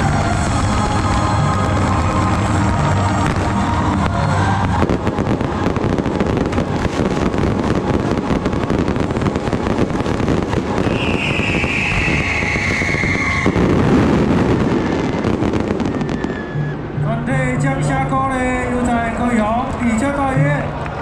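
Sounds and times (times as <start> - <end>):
fireworks crackling: 0.0 - 20.2
high whistle: 10.8 - 13.8, 15.8 - 16.9.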